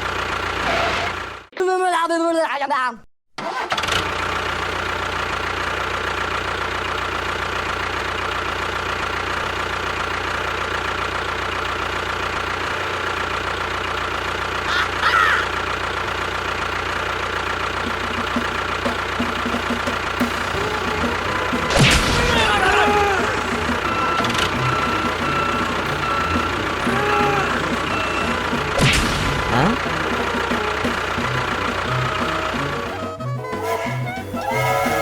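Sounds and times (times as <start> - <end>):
short squeak: 33.2 - 35.0.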